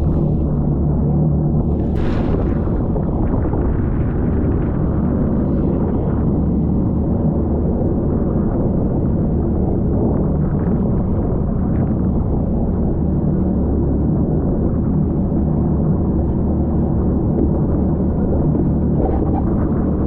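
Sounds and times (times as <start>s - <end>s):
jet ski engine drone: 12.3s - 20.0s.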